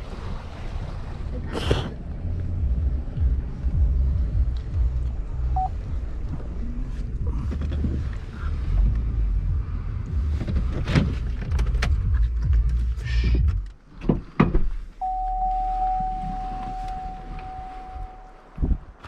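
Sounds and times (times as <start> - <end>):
vehicle cabin rumble: 0.0 - 19.0
electronic warning tone: 15.0 - 18.4.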